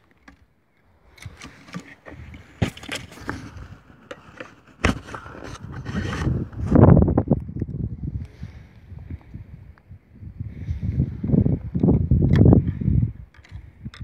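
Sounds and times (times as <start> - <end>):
knocks clicks and scrapes: 1.1 - 6.8.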